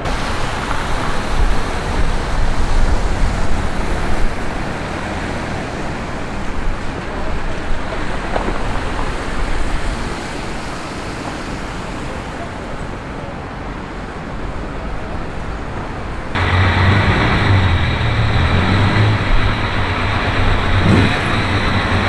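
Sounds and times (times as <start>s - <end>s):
vehicle passing close: 0.0s - 7.8s, 16.3s - 22.0s
traffic rumble: 0.0s - 22.0s.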